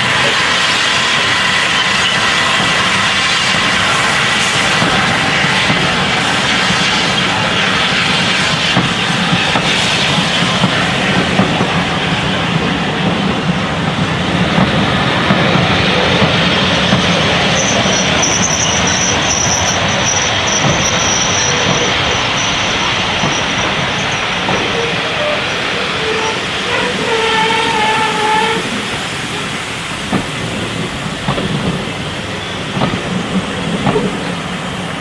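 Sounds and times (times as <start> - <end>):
wheel flange squeal: 0.0 - 10.6, 15.8 - 29.6
train wheels running on rails: 0.0 - 35.0.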